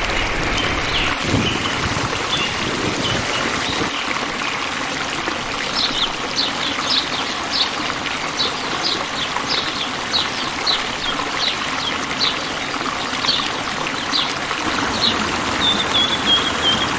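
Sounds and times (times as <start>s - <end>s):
running water: 0.0s - 16.9s.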